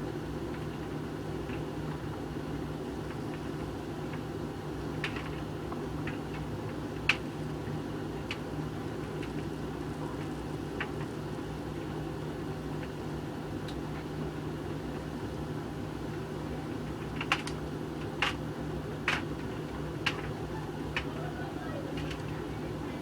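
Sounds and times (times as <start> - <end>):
clicks from tumbling load: 17.0 - 18.4, 19.0 - 21.2, 21.9 - 22.5
tumble dryer humming: 19.4 - 23.0.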